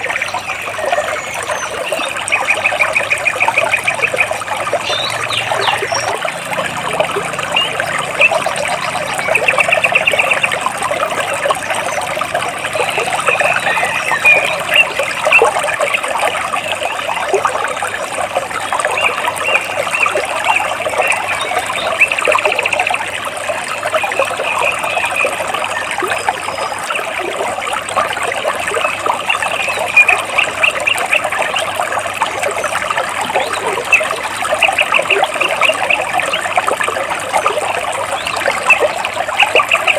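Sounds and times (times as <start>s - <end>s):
small birds chirping and trilling: 0.0s - 15.9s, 18.7s - 23.0s, 28.7s - 31.8s
stream trickling over rocks: 0.0s - 39.9s.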